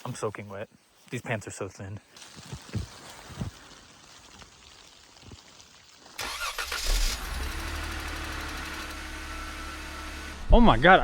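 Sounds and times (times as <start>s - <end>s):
car engine starting and idling: 6.2s - 11.0s.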